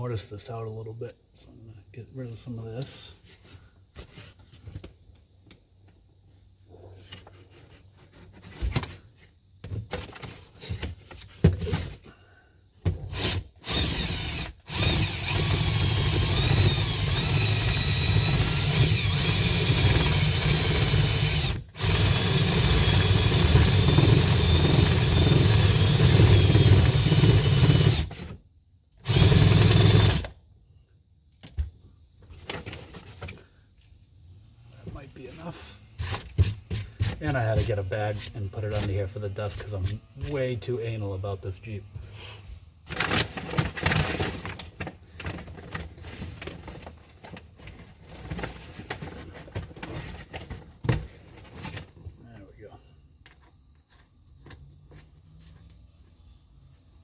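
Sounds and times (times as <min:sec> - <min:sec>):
power tool cutting plywood: 0:13.1 - 0:28.3, 0:29.0 - 0:30.3.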